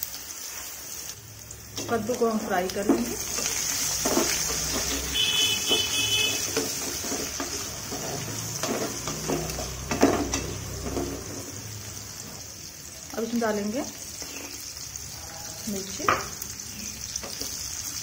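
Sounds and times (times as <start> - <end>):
vegetables sizzling in oil: 0.0 - 18.0
spatula scraping and knocking pan: 2.7 - 11.6.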